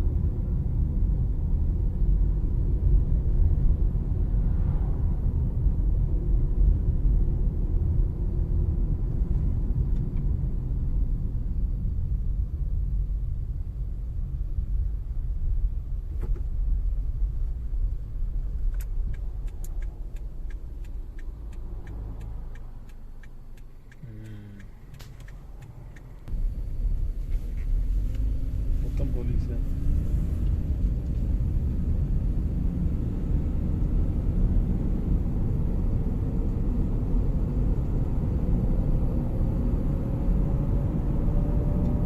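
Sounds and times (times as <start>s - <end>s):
car road rumble: 0.0s - 42.0s
light repeating ticks: 18.7s - 26.3s.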